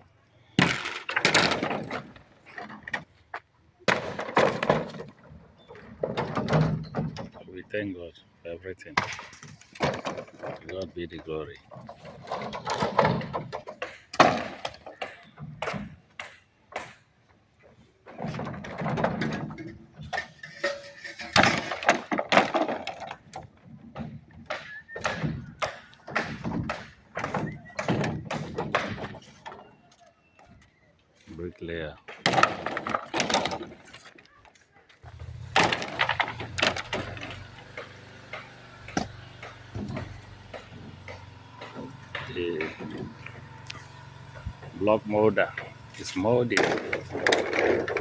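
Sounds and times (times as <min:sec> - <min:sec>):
construction knocks and thuds: 0:00.6 - 0:07.9, 0:08.8 - 0:30.8, 0:31.6 - 0:48.0
low machine hum: 0:35.1 - 0:48.0.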